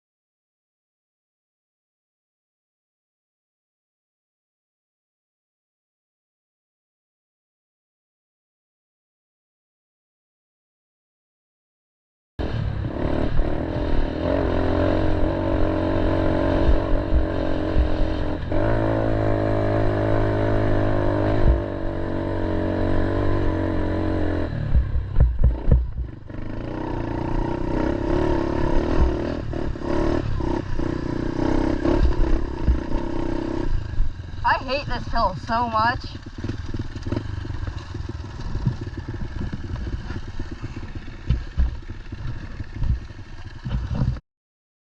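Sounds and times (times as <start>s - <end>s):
pit bike engine under load: 12.4s - 44.2s
knocks and clatter: 36.3s - 44.2s.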